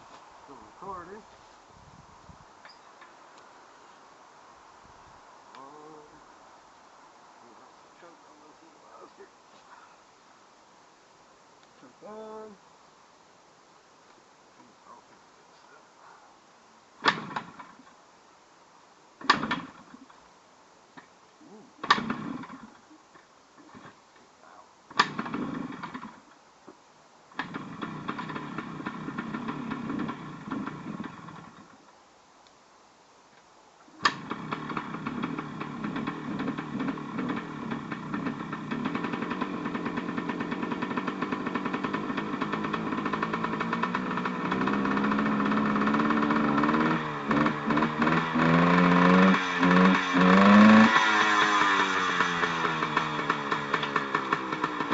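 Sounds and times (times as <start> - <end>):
engine kick-starter: 17.0 - 17.9, 19.2 - 20.2, 21.8 - 24.0, 24.9 - 26.4, 27.3 - 31.8, 34.0 - 54.9
two-stroke engine sputtering and running: 17.0 - 17.9, 19.2 - 20.1, 21.8 - 24.0, 24.9 - 26.3, 27.3 - 31.8, 34.0 - 54.9.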